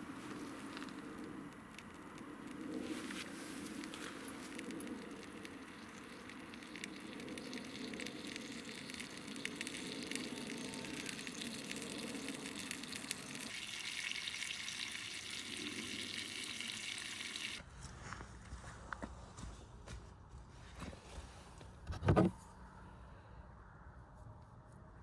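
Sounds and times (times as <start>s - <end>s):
small crackles: 0.0s - 13.6s.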